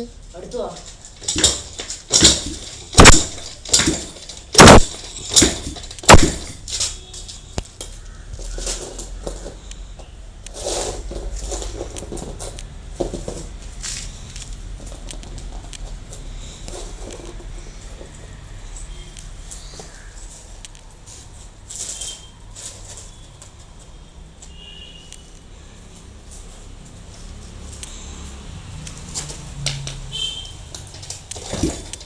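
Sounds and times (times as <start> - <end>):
loud sharp thumps: 1.2 - 6.8.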